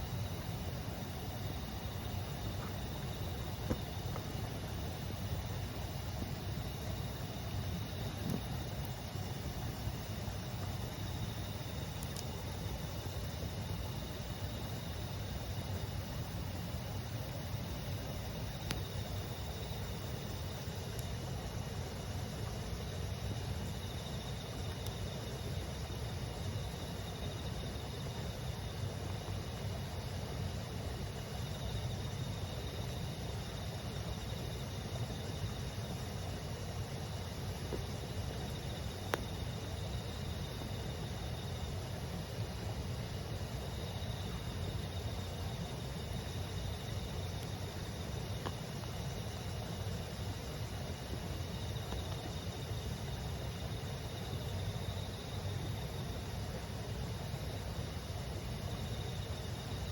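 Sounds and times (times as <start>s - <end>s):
firewood crackle: 0.0s - 31.5s
insects chirping: 0.0s - 59.9s.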